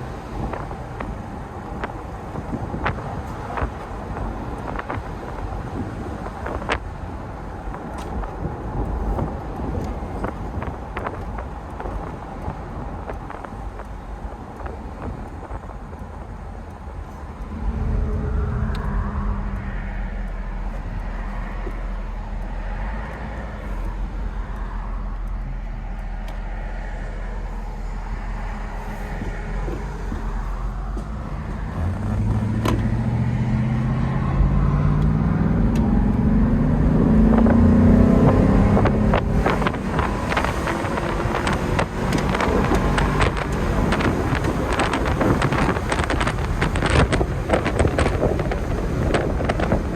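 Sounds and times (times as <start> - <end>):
car engine while driving: 0.0 - 49.9
steady low drone: 16.0 - 48.2.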